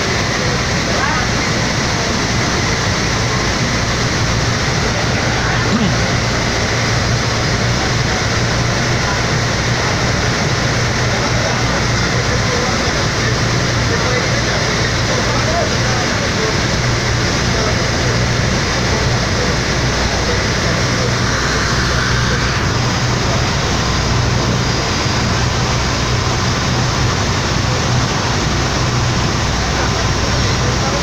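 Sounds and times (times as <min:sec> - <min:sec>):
ferry engines droning: 0:00.0 - 0:31.0
rushing water noise: 0:00.0 - 0:31.0.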